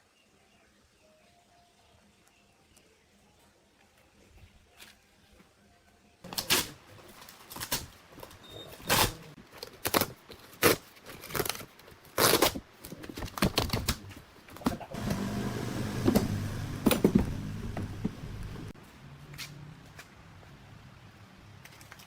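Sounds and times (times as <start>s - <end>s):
steady low hum: 14.9s - 18.8s.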